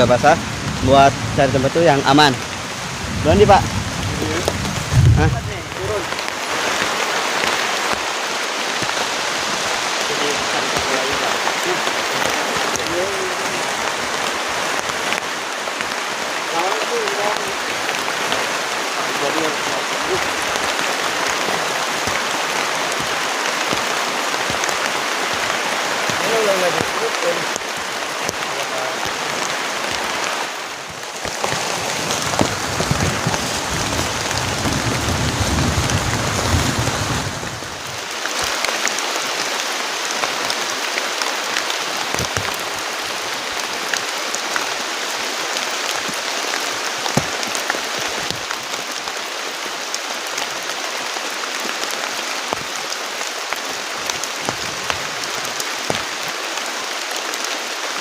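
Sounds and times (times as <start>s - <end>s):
heavy rain pattering: 0.0s - 58.0s
low rumble: 2.9s - 5.9s.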